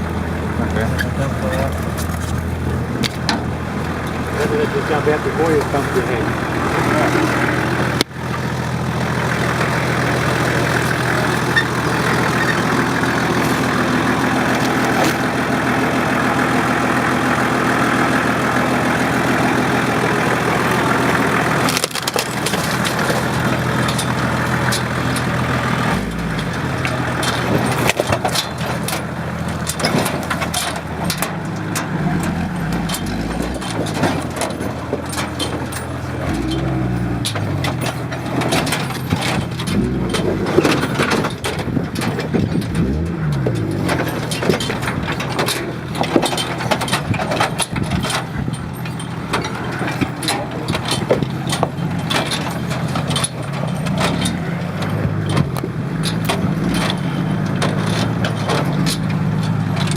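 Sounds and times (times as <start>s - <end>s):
vehicle engine: 0.0s - 59.9s
knocks from wheels and underbody: 0.1s - 59.9s.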